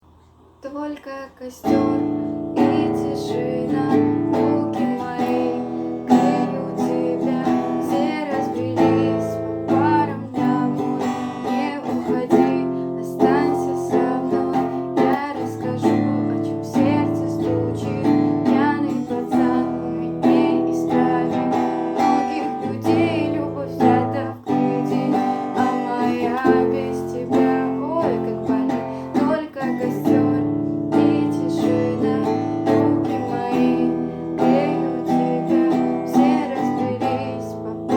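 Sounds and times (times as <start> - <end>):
acoustic guitar strumming chords: 1.6 - 37.9.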